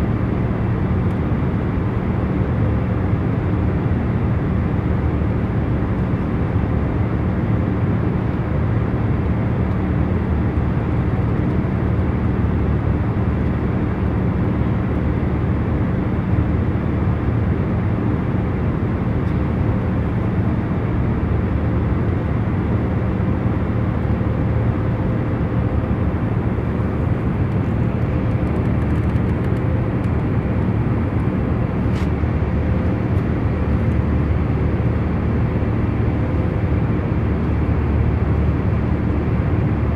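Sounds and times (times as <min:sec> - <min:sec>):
airliner cabin hum: 0:18.5 - 0:39.9.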